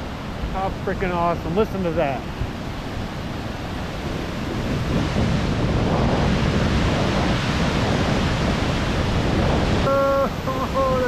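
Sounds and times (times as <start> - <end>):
river water rushing: 6.9 - 11.0.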